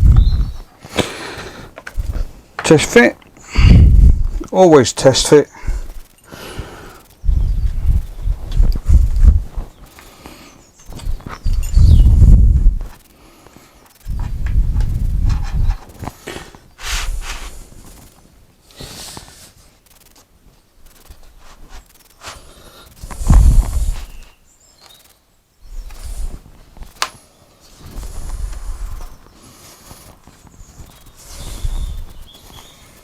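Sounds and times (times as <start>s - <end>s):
sharp click: 26.8s - 27.2s.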